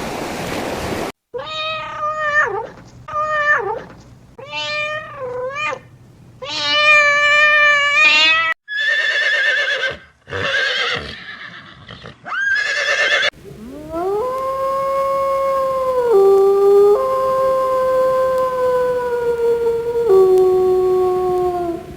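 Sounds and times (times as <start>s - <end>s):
cat meowing: 1.4s - 8.6s, 12.8s - 21.9s
horse whinnying: 8.0s - 13.3s
canine howl: 13.4s - 21.9s.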